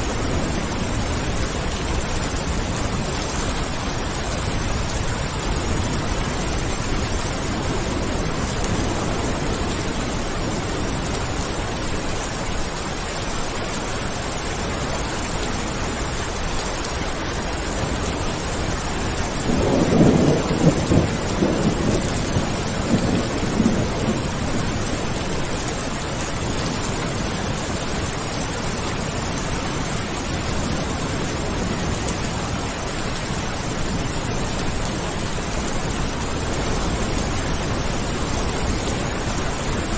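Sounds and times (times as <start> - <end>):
thunder rumbling: 0.0 - 12.9, 17.1 - 39.9
steady rain falling: 0.0 - 39.9.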